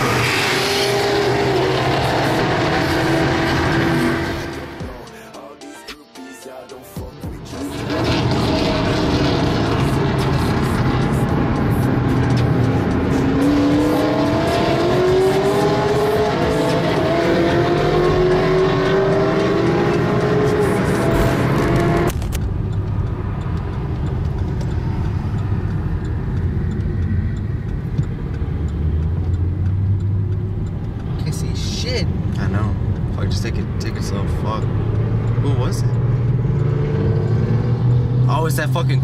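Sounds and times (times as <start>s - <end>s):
race car engines at full throttle: 0.0s - 5.1s, 7.2s - 39.0s.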